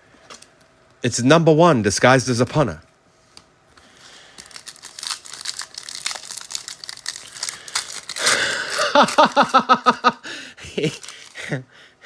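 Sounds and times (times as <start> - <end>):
packaging crinkling: 4.0 - 10.0, 10.8 - 11.6.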